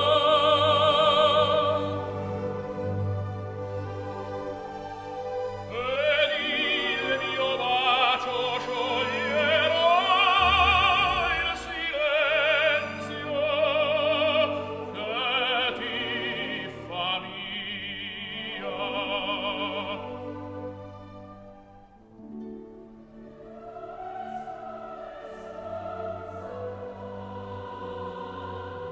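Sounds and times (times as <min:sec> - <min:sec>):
operatic singer with vibrato: 0:00.0 - 0:02.5, 0:05.7 - 0:20.4
orchestra playing: 0:00.0 - 0:28.9.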